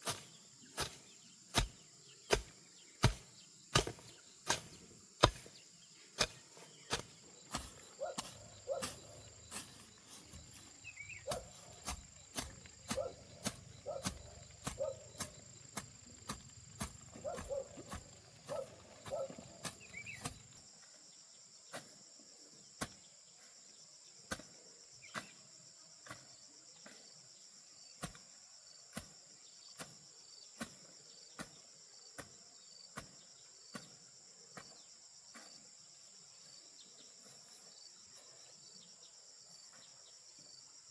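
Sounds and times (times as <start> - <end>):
hand tool chopping strikes: 0.0 - 5.6, 6.2 - 10.6, 11.3 - 20.4
insects buzzing: 0.1 - 40.9.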